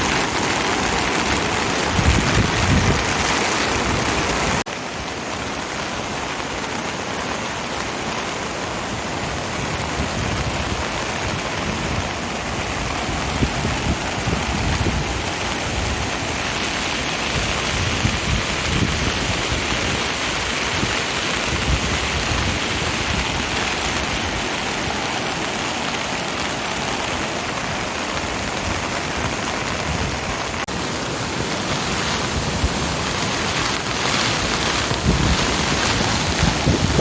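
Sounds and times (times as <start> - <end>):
wind buffeting microphone: 0.0 - 4.6, 8.8 - 37.0
river rushing: 0.0 - 37.0.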